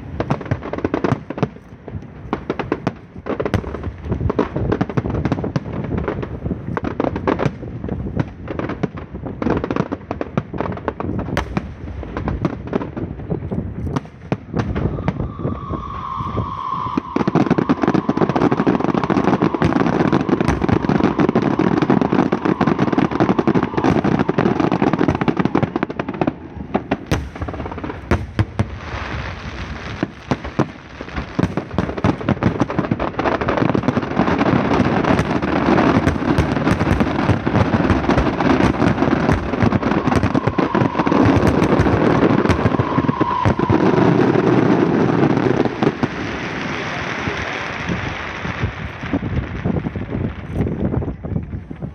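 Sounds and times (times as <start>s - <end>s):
fireworks and firecrackers banging: 0.0s - 51.9s.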